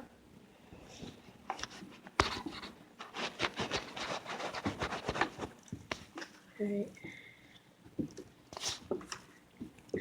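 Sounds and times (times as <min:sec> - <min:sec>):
rubbing against microphone: 0:01.0 - 0:05.6.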